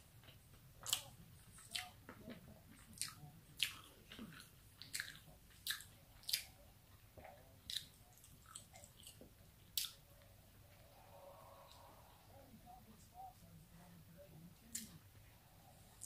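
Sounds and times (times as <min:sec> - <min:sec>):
chewing food: 0:00.0 - 0:12.0
wet mouth smacks and clicks: 0:09.8 - 0:10.0.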